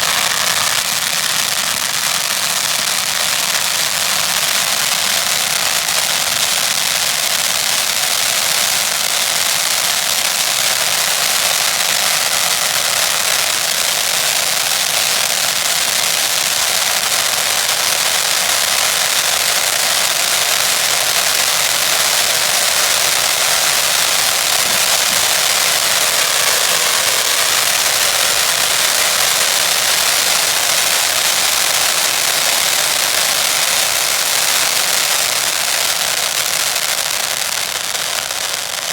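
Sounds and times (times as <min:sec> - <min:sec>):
fireworks hissing and crackling: 0:00.0 - 0:38.9.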